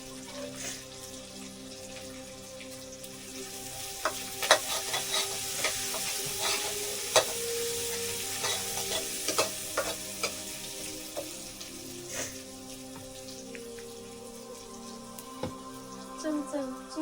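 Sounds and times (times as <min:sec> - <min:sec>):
food sizzling in a pan: 0:00.0 - 0:17.0
utensil scraping and knocking pan: 0:04.1 - 0:07.4, 0:08.4 - 0:10.4.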